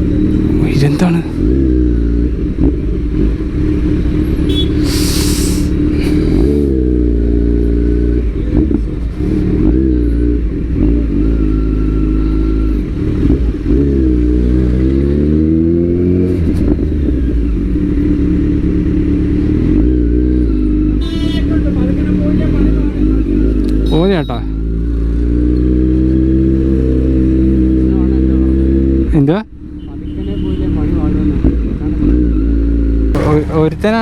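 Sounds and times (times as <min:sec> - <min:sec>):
motorcycle engine revving: 0:00.0 - 0:34.0
brief hissing burst: 0:04.7 - 0:06.6.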